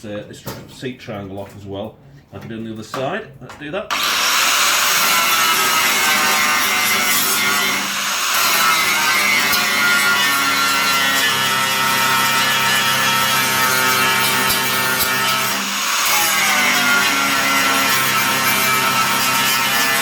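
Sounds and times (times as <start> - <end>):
angle grinder grinding steel: 3.9 - 20.0.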